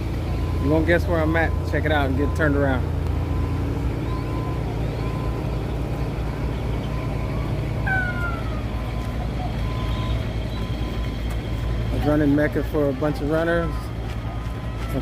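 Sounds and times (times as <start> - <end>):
road traffic rumble: 0.0 - 15.0
short falling tone: 7.8 - 8.9.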